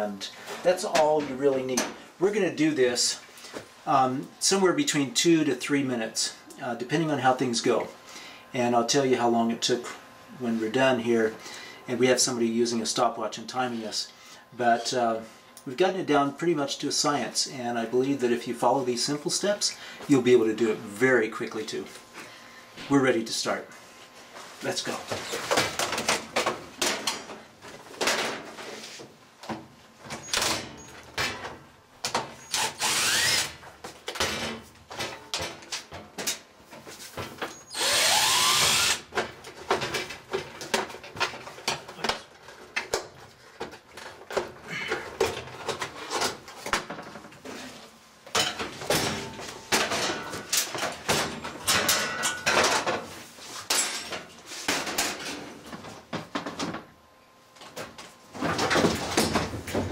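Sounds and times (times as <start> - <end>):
tools and metal panels clanking: 0.0 - 2.0, 24.9 - 28.8, 29.4 - 32.5, 33.7 - 37.7, 39.1 - 56.9, 57.6 - 59.9
power driver whirring: 32.4 - 33.6, 37.7 - 39.1.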